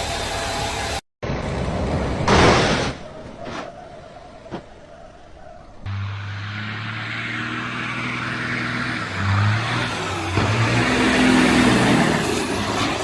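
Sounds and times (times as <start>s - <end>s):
road and tyre noise: 0.0s - 13.0s
car engine hum: 3.1s - 13.0s.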